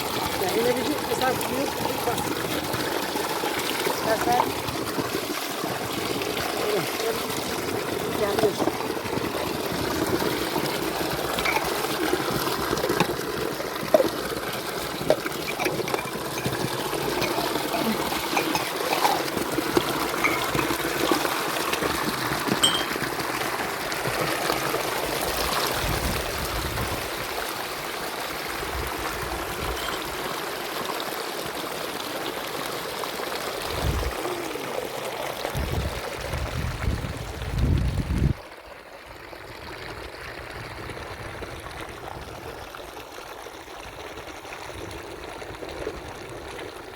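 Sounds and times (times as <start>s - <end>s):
spring water trickling: 0.0s - 37.5s, 38.3s - 46.9s.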